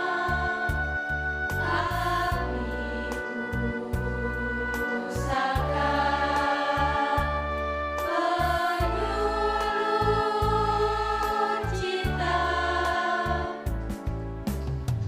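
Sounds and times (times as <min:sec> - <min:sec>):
choir singing a march: 0:00.0 - 0:13.7
accompaniment with pulsing bass: 0:00.3 - 0:15.0.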